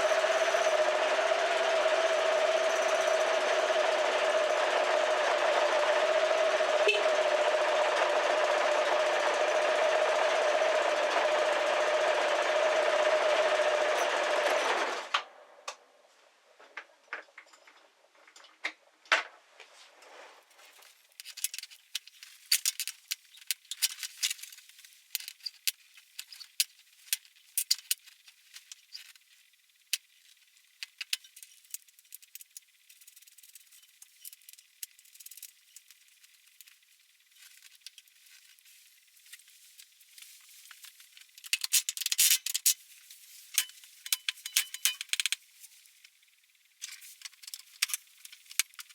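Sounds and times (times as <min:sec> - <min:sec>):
small hard objects clinking: 0:39.2 - 0:45.8.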